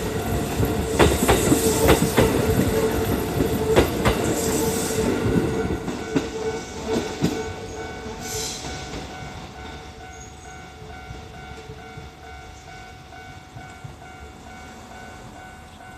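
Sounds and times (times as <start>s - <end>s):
wheels clacking over rail joints: 0.0s - 12.1s
electric train passing: 0.0s - 15.9s
level crossing warning bell: 0.0s - 15.9s.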